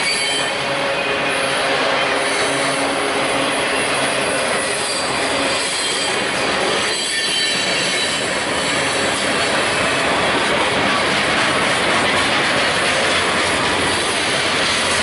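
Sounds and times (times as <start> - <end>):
high wheel squeal: 0.0 - 9.1
steel wheels on rail: 0.0 - 15.0.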